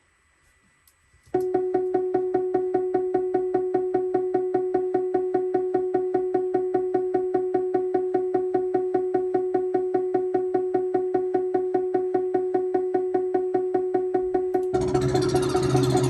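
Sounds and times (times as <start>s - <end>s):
synthesizer repeating one note: 1.4s - 16.0s
loud buzzy noise: 14.5s - 16.0s.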